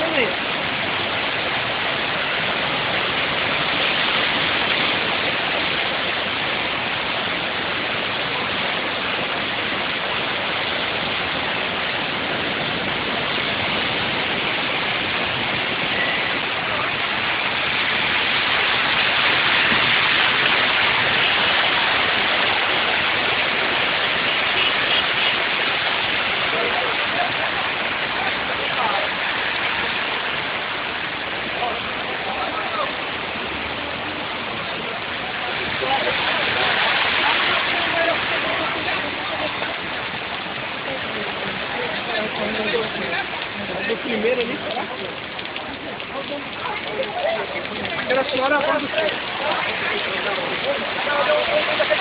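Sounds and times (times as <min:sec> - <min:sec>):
heavy rain: 0:00.0 - 0:52.0
running water: 0:00.0 - 0:52.0.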